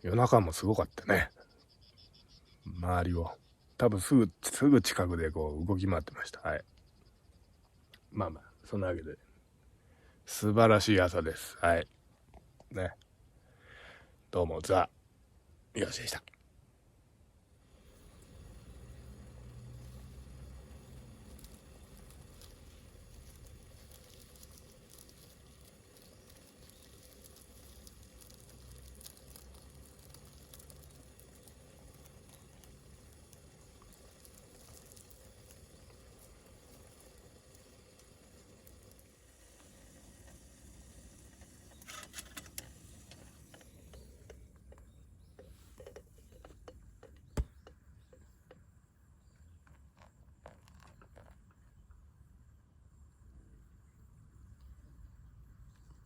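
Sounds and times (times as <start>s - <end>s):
low steady rumble: 17.0s - 41.7s
light crackling: 17.4s - 48.6s
small clicks: 17.7s - 48.6s.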